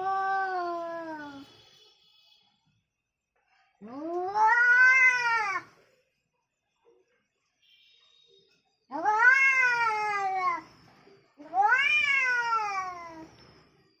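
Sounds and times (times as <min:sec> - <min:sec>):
angry cat meowing: 0:04.0 - 0:05.7, 0:08.9 - 0:10.6, 0:11.4 - 0:13.3.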